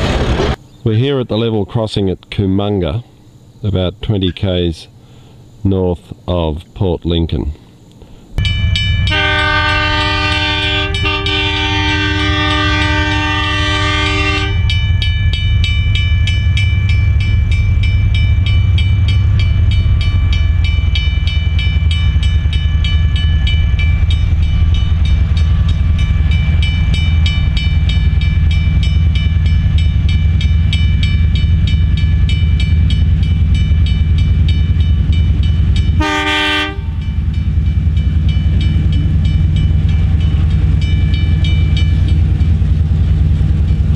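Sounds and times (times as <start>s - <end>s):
diesel locomotive engine: 0.0s - 43.9s
train horn: 9.0s - 14.8s, 35.9s - 37.2s.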